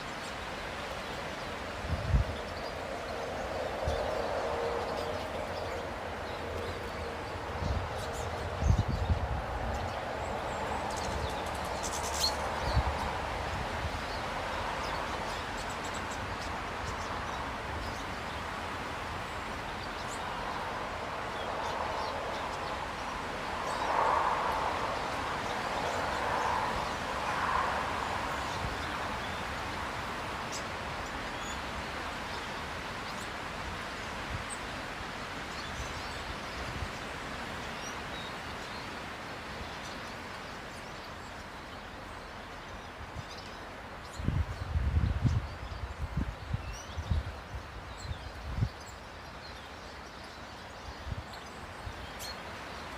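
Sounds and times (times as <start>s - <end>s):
steady rushing noise: 0.3s - 38.2s.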